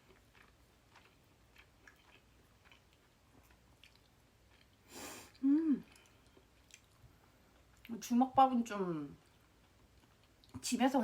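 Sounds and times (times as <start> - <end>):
person chewing food: 0.0 - 7.9, 9.2 - 10.6
person breathing: 4.8 - 6.3.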